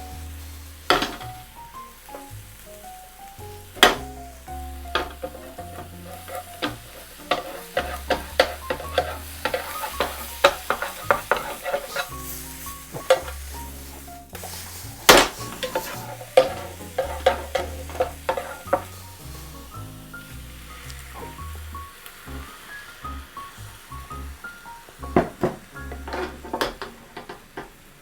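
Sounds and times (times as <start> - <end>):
utensil scraping pan: 0.0 - 2.3, 3.7 - 19.7, 25.0 - 27.8
background music: 0.0 - 26.8
egg sizzling in frying pan: 0.0 - 28.0.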